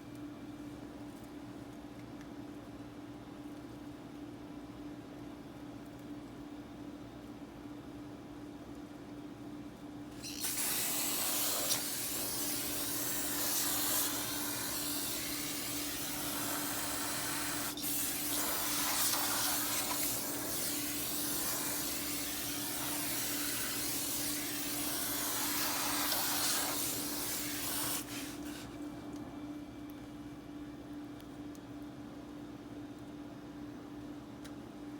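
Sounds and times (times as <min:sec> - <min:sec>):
aerosol spray hissing: 0:10.2 - 0:28.5.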